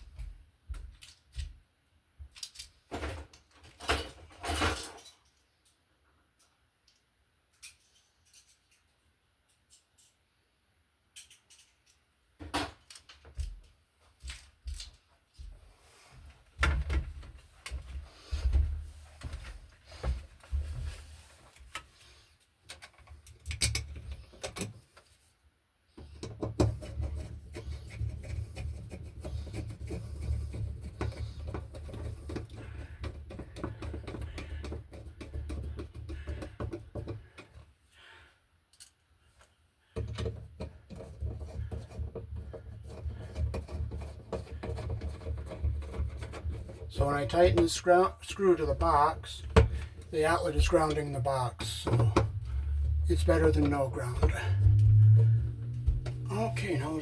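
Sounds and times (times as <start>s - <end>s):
scraping and rattling: 39.9s - 57.0s
low rumble: 52.0s - 56.6s.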